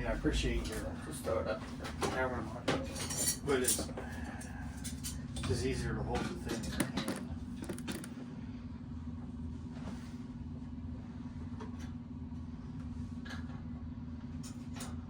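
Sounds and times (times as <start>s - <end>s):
underlying rumble: 0.0s - 9.6s
low background hum: 0.0s - 15.0s.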